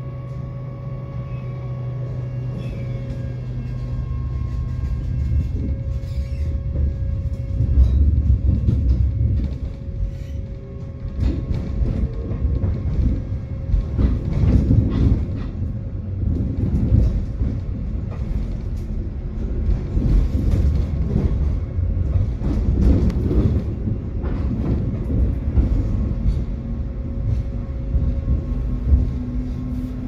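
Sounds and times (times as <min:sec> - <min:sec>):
tram rumbling along track: 0:00.0 - 0:30.0
wheels clanking over rails: 0:02.5 - 0:29.8.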